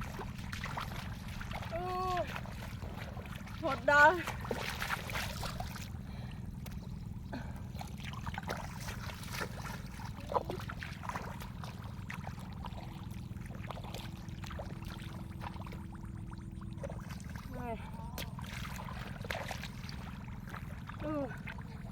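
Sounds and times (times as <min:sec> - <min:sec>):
shallow water trickling: 0:00.0 - 0:21.9
steady low rumble: 0:00.0 - 0:21.9.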